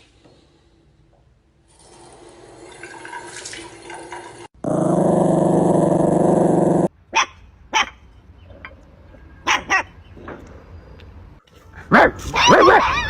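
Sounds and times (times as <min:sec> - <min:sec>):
dog growling loudly: 0:04.6 - 0:06.9.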